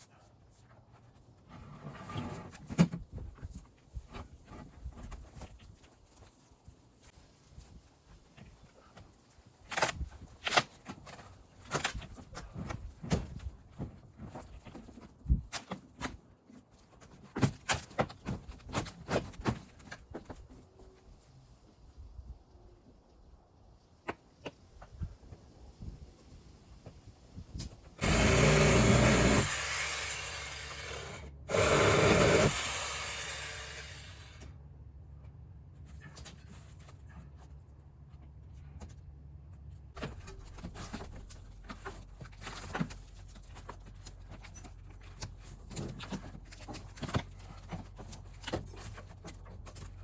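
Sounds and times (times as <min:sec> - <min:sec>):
power saw cutting wood: 0:28.0 - 0:34.4.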